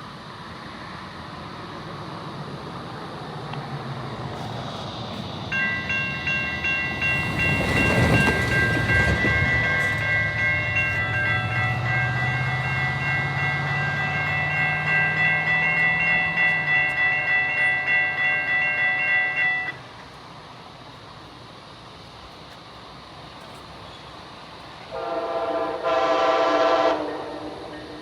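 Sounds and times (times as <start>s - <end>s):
diesel locomotive engine: 0.0s - 28.0s
train rushing past: 0.0s - 28.0s
crossing warning bells ringing: 5.1s - 20.2s.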